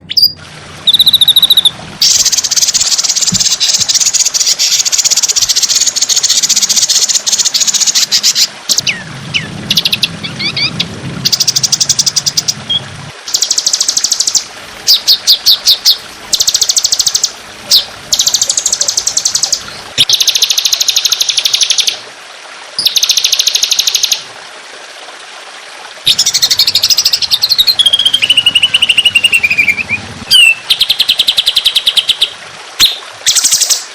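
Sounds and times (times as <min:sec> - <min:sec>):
songbird trills: 0:26.1 - 0:33.8.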